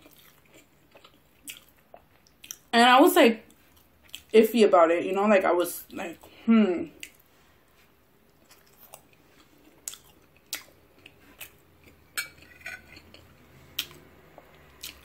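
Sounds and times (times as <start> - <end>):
person chewing food: 0.0 - 2.7, 3.5 - 4.3, 7.0 - 15.0.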